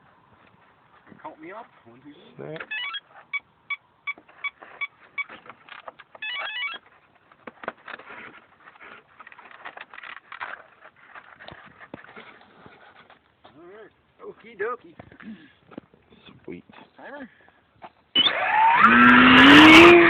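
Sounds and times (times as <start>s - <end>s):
rustling handling noise: 0.0s - 18.1s
rising run of beep tones: 18.2s - 20.0s.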